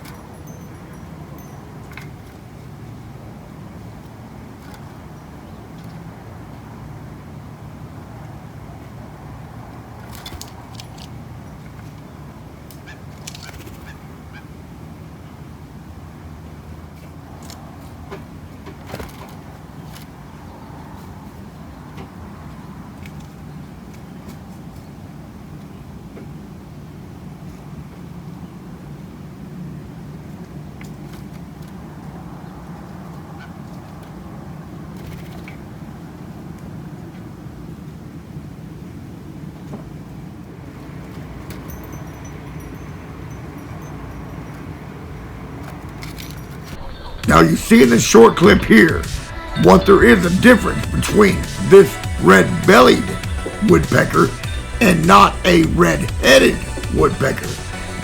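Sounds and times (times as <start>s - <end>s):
steady low outdoor hum: 46.7s - 58.0s.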